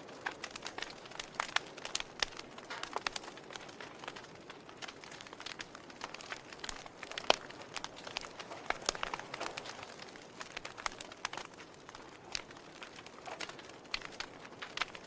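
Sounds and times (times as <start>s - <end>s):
fire crackling and popping: 0.0s - 15.0s
low rush of flames: 0.0s - 15.0s.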